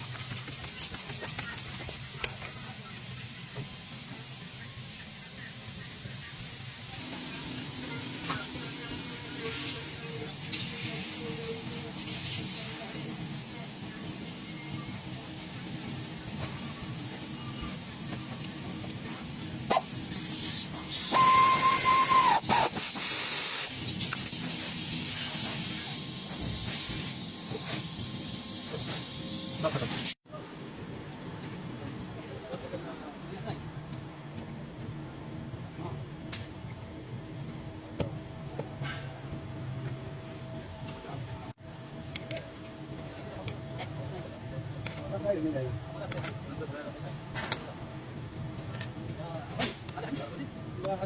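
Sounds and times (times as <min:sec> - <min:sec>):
loud hiss with whistling tone: 0:19.7 - 0:30.2.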